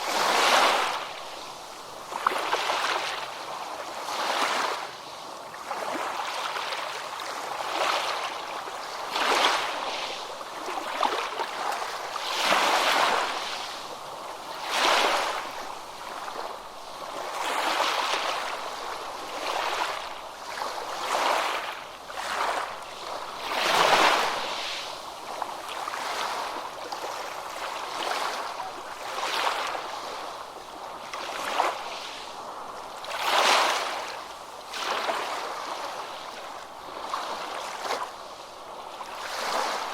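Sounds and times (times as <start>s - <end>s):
small waves breaking on beach: 0.0s - 39.9s.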